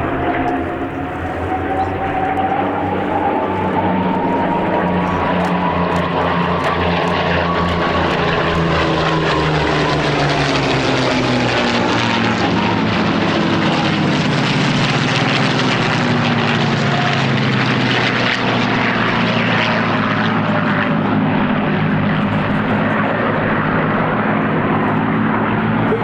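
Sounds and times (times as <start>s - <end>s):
propeller aircraft engine: 0.0s - 26.0s.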